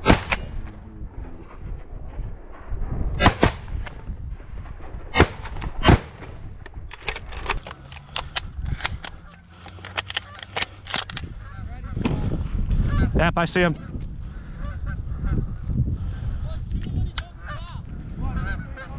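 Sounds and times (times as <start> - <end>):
faint cracks and clicks: 6.7 - 11.4.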